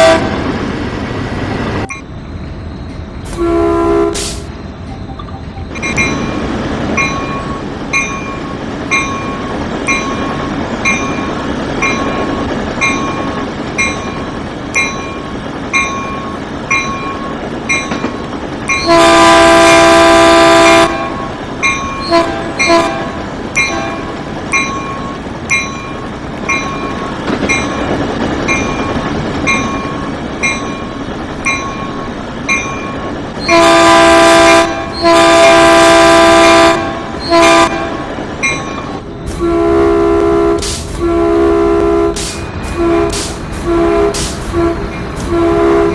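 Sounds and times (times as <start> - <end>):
multi-tone train horn: 0.0 - 0.4, 3.3 - 4.5, 18.7 - 21.4, 22.0 - 24.1, 33.4 - 38.2, 39.3 - 45.9
running train noise: 0.0 - 45.9
train bell ringing: 1.8 - 3.5, 4.7 - 39.4.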